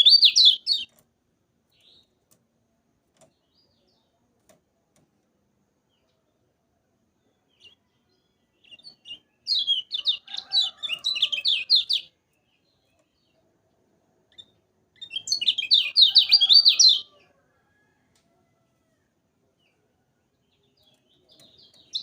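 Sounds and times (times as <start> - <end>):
bird chattering song: 0.0 - 1.0, 8.6 - 13.4, 14.3 - 17.2, 20.5 - 22.0.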